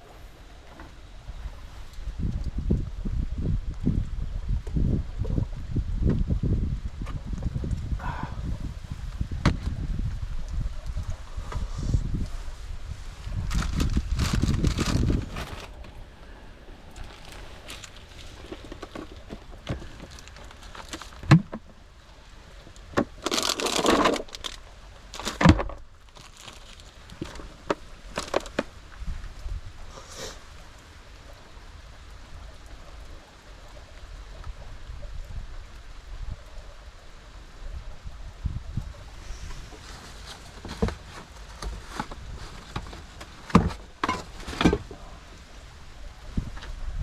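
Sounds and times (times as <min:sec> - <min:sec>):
crinkling rustle: 0:09.0 - 0:31.6, 0:38.9 - 0:46.9.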